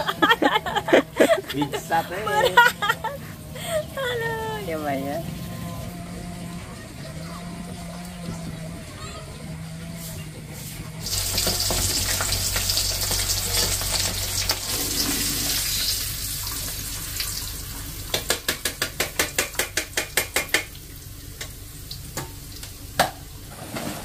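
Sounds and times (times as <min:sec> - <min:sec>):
food sizzling in a wok: 0:11.0 - 0:18.3.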